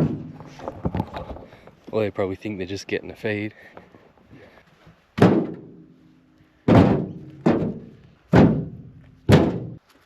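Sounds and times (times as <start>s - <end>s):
firewood thunking onto a load: 0.0s - 1.8s, 5.2s - 5.8s, 6.6s - 9.8s.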